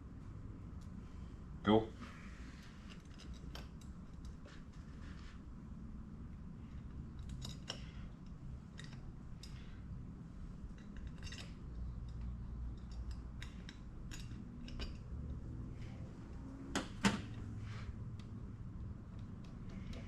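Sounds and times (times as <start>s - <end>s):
metal parts clinking on a workbench: 7.2s - 8.0s, 10.7s - 15.4s.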